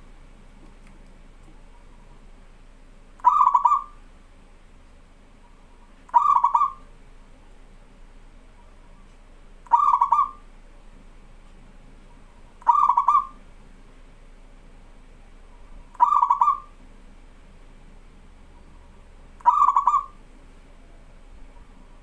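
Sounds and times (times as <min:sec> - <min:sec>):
dove cooing: 0:03.2 - 0:04.0, 0:06.1 - 0:06.9, 0:09.7 - 0:10.5, 0:12.6 - 0:13.4, 0:15.6 - 0:16.8, 0:18.6 - 0:22.0.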